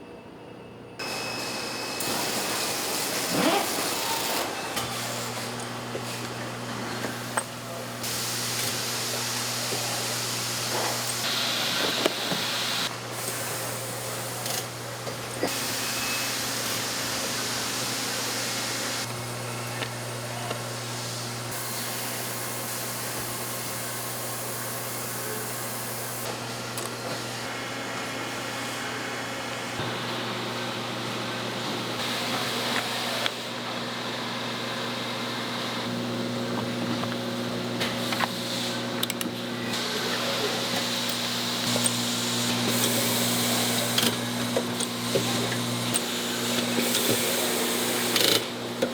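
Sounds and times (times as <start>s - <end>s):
machinery humming: 0.1s - 48.9s
machine hiss: 1.0s - 6.2s, 15.4s - 19.1s.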